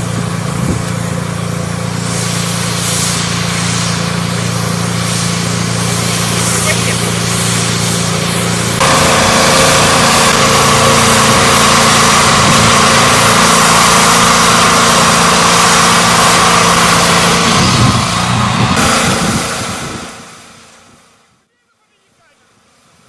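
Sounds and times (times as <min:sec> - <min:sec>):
small petrol engine running: 0:00.0 - 0:21.4
hiss with high tone: 0:01.8 - 0:18.2.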